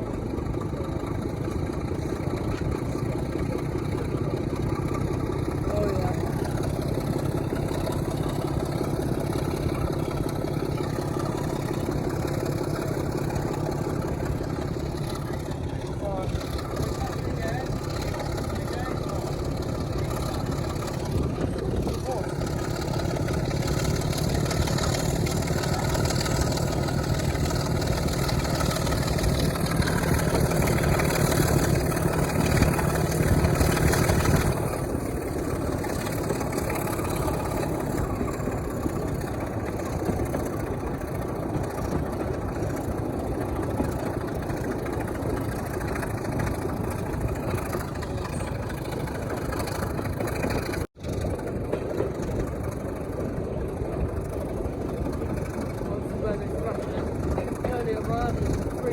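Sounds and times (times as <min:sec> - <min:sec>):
diesel locomotive engine running: 0:00.0 - 0:58.9.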